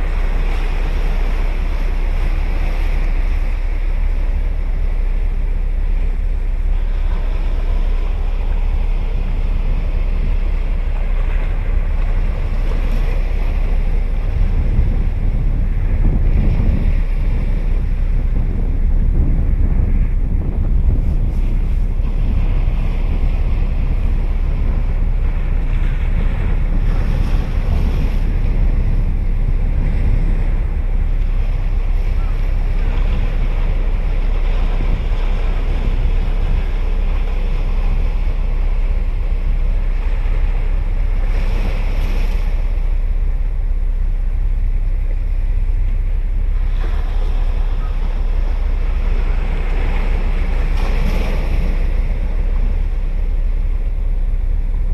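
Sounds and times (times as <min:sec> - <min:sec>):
ocean surf breaking: 0:00.0 - 0:54.9
wind buffeting the microphone: 0:00.0 - 0:54.9.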